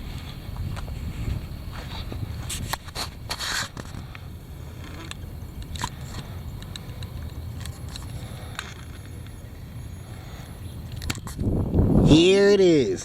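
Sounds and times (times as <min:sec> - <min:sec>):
sharp scraping crackles: 0:00.0 - 0:09.4
wind buffeting microphone: 0:00.0 - 0:13.0
scattered clicks: 0:04.8 - 0:09.4.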